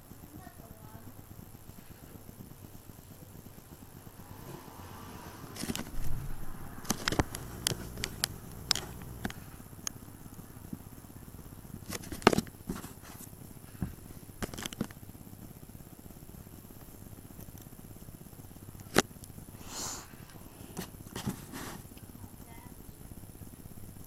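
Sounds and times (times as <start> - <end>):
low thumps: 4.0 - 9.4
handling clicks and taps: 6.8 - 10.0, 13.8 - 15.0.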